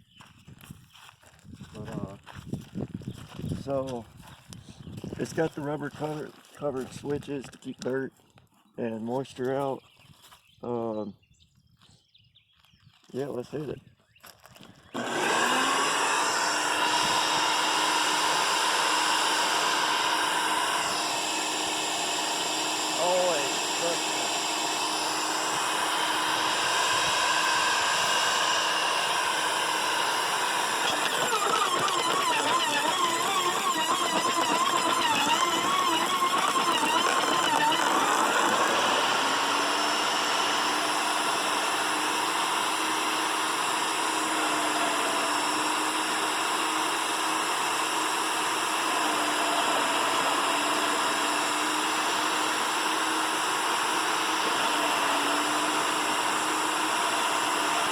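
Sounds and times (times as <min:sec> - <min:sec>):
wood chipper motor hum: 0:14.5 - 0:57.9.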